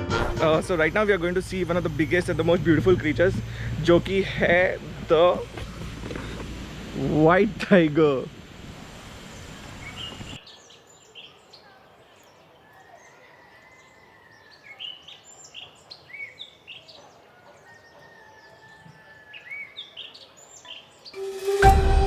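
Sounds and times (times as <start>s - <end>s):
faint outdoor background noise: 0.4s - 21.7s
birds chirping: 9.2s - 21.8s.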